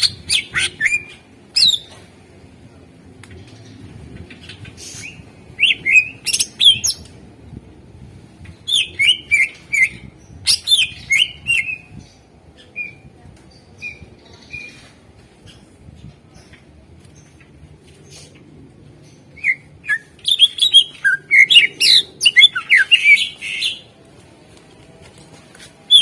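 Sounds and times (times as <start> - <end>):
bird chirping and whistling: 0.0 - 1.9, 4.9 - 7.0, 8.7 - 11.9, 19.4 - 23.8.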